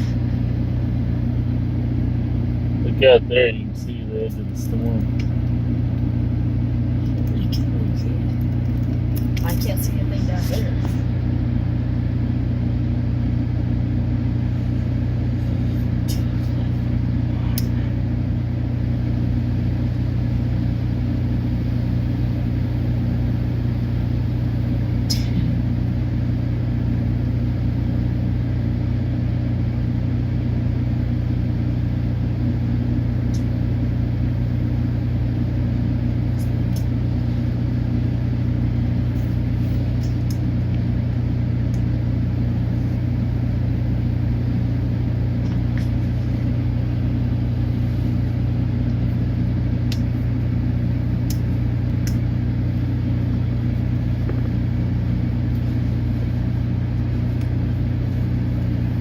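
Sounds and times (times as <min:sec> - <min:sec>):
motor humming: 0:00.0 - 0:59.0.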